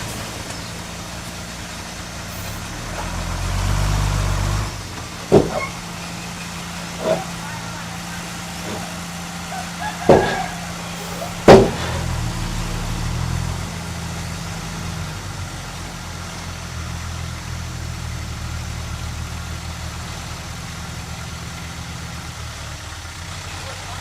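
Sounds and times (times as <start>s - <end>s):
heavy diesel machine engine: 0.0s - 24.0s
sharp bangs: 4.7s - 12.8s.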